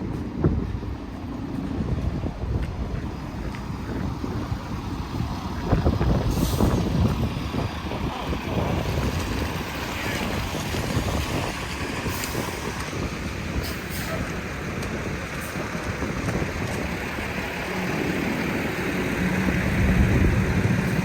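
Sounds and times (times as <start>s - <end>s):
wind noise on microphone: 0.0s - 21.0s.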